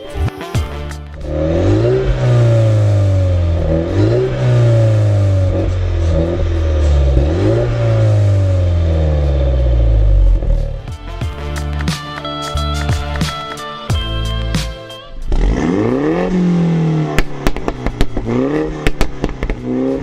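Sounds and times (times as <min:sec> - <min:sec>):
car engine revving: 0:00.7 - 0:11.8, 0:15.1 - 0:20.0.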